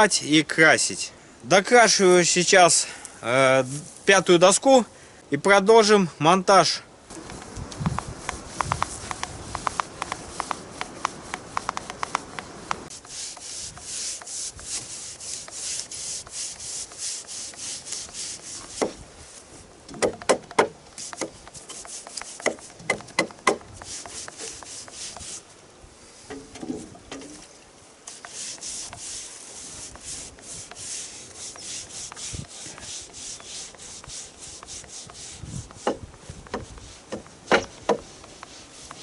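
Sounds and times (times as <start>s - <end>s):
paintbrush scrubbing wooden board: 7.8s - 19.4s, 21.0s - 25.4s, 28.1s - 39.0s.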